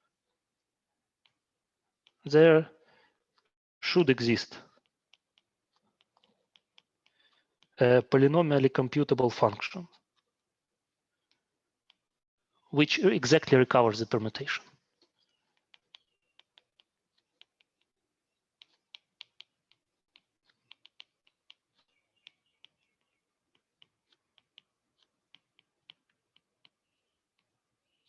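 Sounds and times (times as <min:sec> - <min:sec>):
pen clicking and tapping on board: 0:15.5 - 0:28.0.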